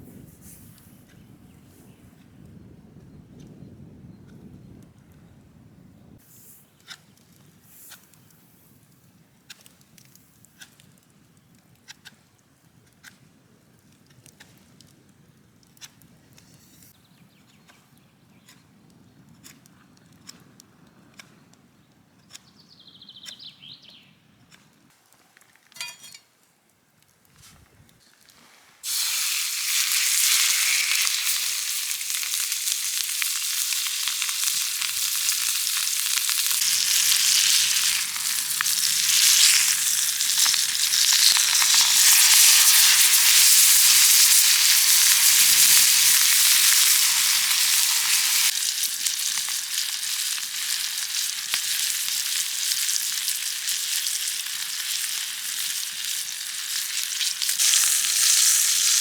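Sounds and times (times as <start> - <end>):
food sizzling in a pan: 28.8 - 59.0.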